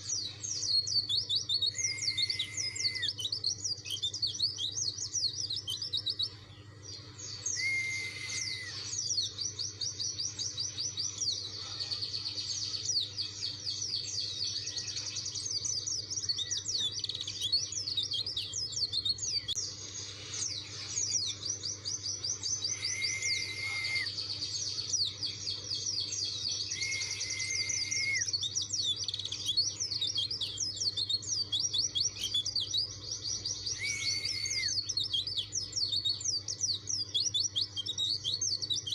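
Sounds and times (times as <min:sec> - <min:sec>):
bird twittering with high chirps: 0:00.0 - 0:38.9
lower whistles: 0:01.7 - 0:03.2, 0:07.4 - 0:09.0, 0:22.4 - 0:24.2, 0:26.6 - 0:28.4, 0:33.6 - 0:34.9.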